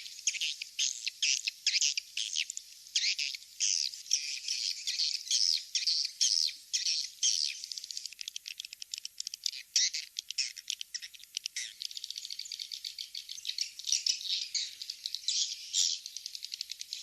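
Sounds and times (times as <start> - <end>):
swiftlet chirps and twitters: 8.9 - 17.0.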